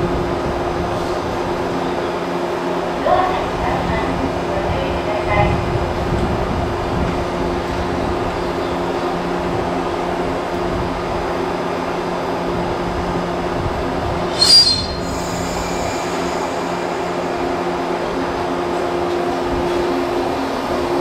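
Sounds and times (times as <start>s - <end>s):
train equipment humming: 7.3s - 21.0s
short high squeal: 14.3s - 16.2s.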